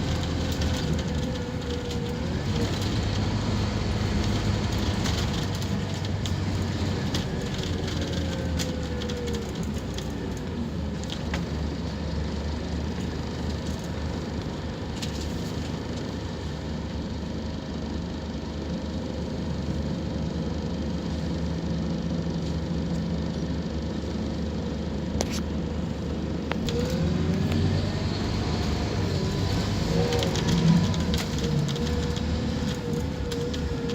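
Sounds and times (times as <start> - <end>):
rattles and clicks: 0.0 - 11.5, 28.4 - 33.9
bus diesel engine running: 0.0 - 33.9
engine whine: 0.0 - 33.9.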